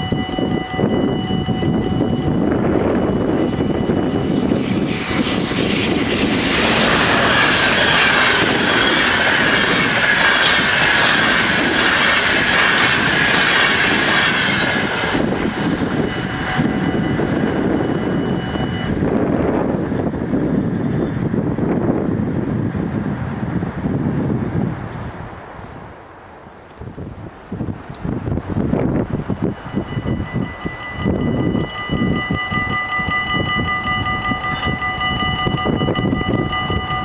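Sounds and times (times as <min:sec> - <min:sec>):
level crossing warning bells: 0:00.0 - 0:19.8, 0:29.3 - 0:37.0
train wheels rumbling on rails: 0:00.0 - 0:25.9, 0:26.6 - 0:37.0.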